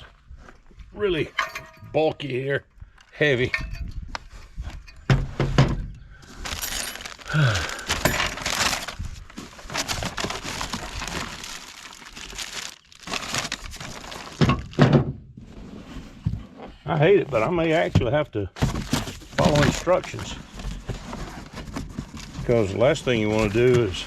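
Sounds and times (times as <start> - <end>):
heavy metal parts thunking: 1.2 - 2.1, 4.7 - 9.0
cardboard and packing rustling: 4.3 - 17.9, 18.6 - 24.0.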